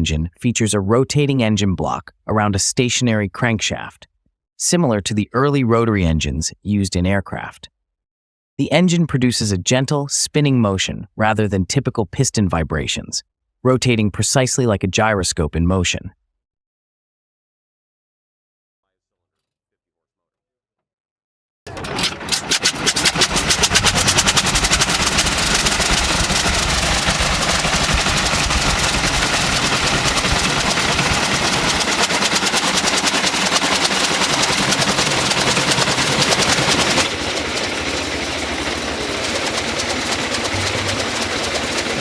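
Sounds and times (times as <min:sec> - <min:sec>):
rotary engine pulsing: 0:21.7 - 0:42.0.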